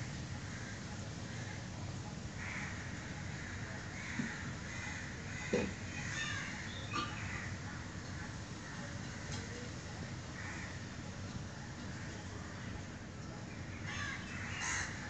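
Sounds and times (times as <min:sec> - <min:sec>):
harsh raspy bird calls: 0:02.4 - 0:07.6, 0:13.8 - 0:15.0.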